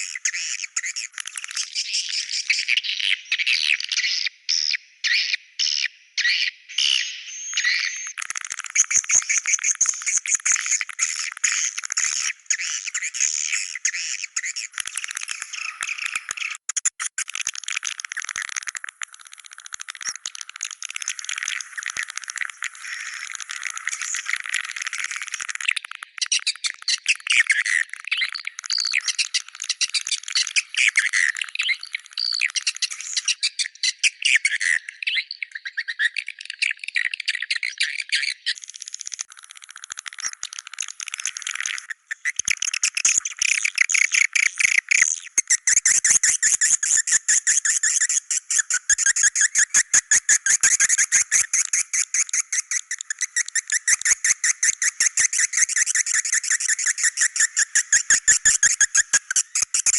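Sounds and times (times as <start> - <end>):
swiftlets chirping and twittering: 38.2 - 59.9.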